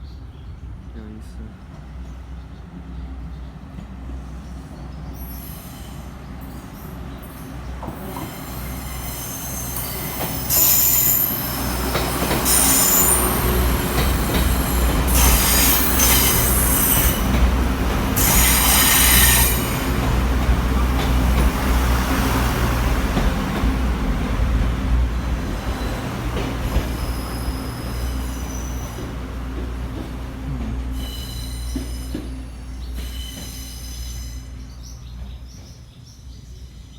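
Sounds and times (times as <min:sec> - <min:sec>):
train passing rumble: 0:00.0 - 0:36.9
train wheels squealing: 0:04.6 - 0:17.4, 0:18.2 - 0:20.0, 0:25.6 - 0:29.3, 0:30.9 - 0:36.9.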